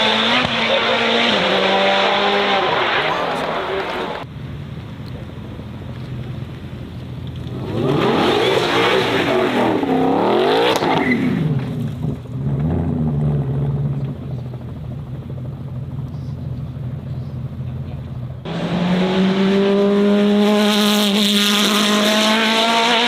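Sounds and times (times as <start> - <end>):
race car engine accelerating: 0.0 - 4.2, 16.3 - 23.0
low steady engine drone: 11.7 - 18.9.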